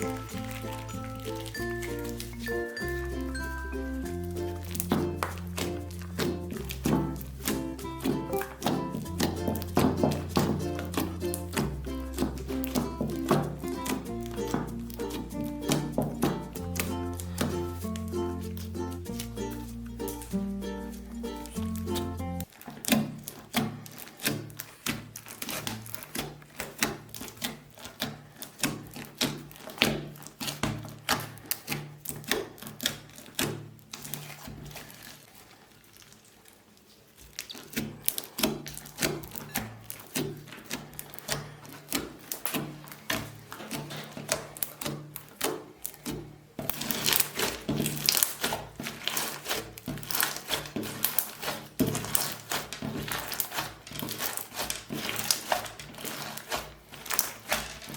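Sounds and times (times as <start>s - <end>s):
slime squishing wet clicks: 0.0s - 20.3s, 21.0s - 57.9s
light background music: 0.0s - 22.5s.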